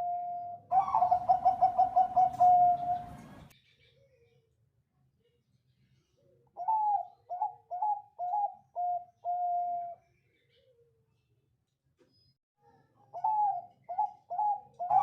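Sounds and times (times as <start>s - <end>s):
zebra dove cooing: 0.0s - 3.4s, 6.6s - 10.0s, 13.1s - 15.0s.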